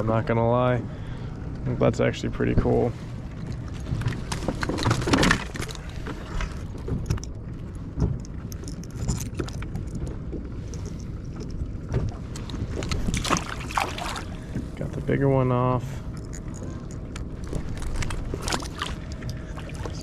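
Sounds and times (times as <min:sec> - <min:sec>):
low rumble: 0:00.0 - 0:20.0
fishing tackle rattling: 0:03.4 - 0:14.7, 0:16.0 - 0:20.0.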